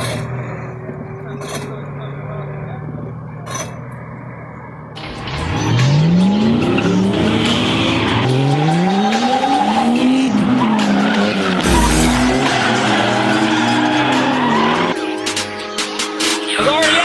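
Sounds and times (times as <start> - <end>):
tyres squealing and skidding: 0.0 - 17.0
car engine revving hard: 5.0 - 15.0
low rumble: 11.6 - 12.8.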